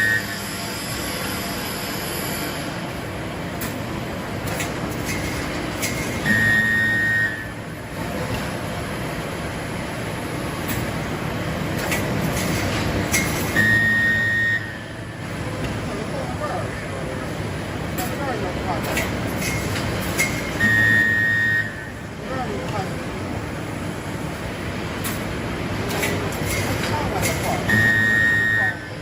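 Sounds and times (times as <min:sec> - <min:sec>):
loud welding buzz: 0:00.0 - 0:03.3
welding machine line running: 0:00.0 - 0:21.1.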